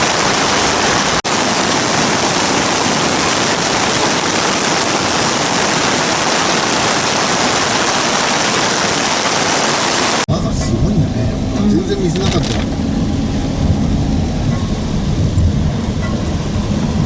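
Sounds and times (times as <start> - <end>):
rush of water: 0.0 - 10.3.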